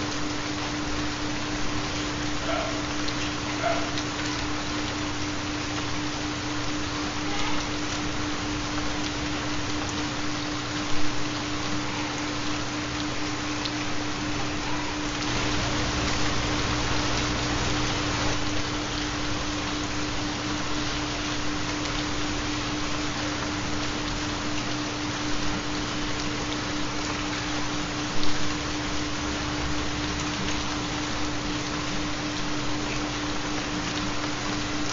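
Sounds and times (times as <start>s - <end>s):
constant low hum tone: 0.0s - 34.9s
steady rain: 0.0s - 34.9s.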